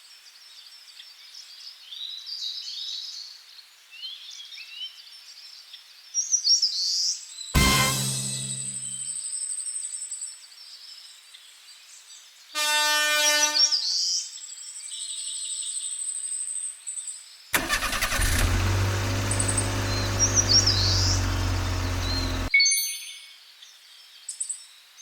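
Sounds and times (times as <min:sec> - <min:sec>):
birds chirping: 0:17.6 - 0:22.5.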